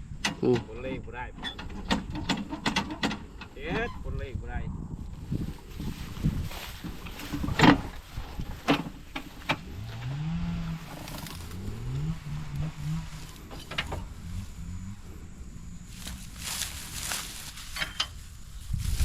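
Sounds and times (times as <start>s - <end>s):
engine running: 6.5s - 18.4s.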